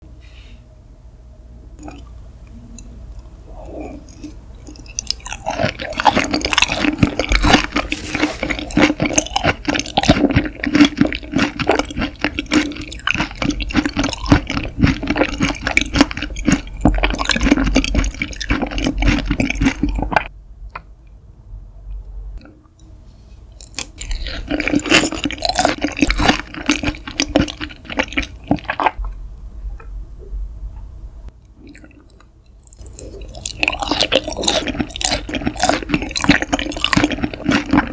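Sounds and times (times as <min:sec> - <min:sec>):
wet chewing and squelching: 0:02.8 - 0:20.3, 0:23.6 - 0:29.2, 0:31.6 - 0:37.9.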